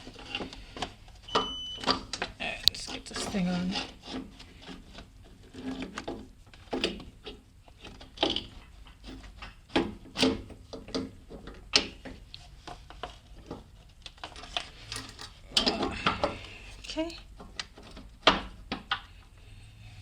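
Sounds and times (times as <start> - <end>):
metal clinks and scrapes: 14.2 - 17.2.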